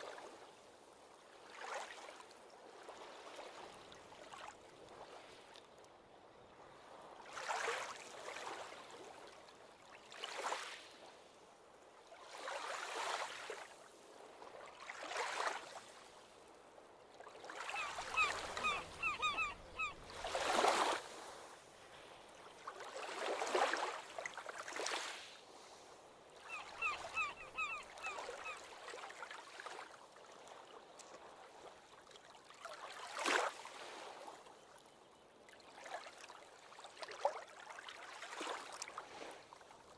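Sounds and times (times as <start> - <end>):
ocean waves breaking on shore: 0.0 - 34.8, 35.6 - 39.9.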